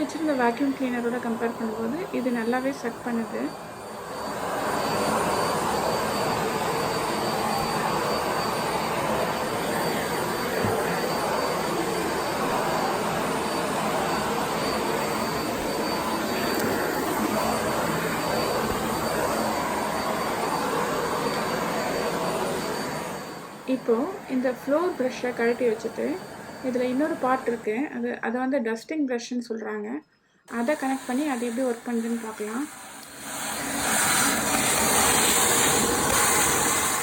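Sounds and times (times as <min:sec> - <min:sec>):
vacuum cleaner running: 0:00.0 - 0:27.9, 0:30.5 - 0:37.0
faint high motor whine: 0:00.0 - 0:28.3, 0:30.1 - 0:37.0.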